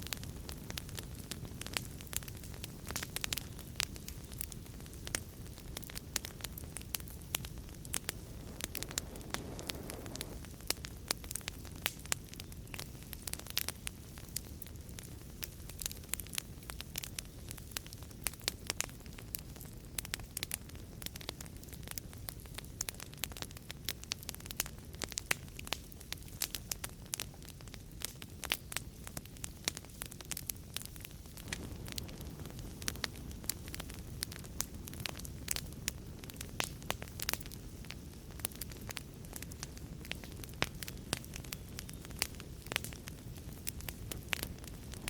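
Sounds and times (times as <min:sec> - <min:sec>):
fire hissing: 0:00.0 - 0:18.4, 0:28.4 - 0:45.0
low rush of flames: 0:00.0 - 0:45.0
wood fire crackling and popping: 0:00.0 - 0:45.0.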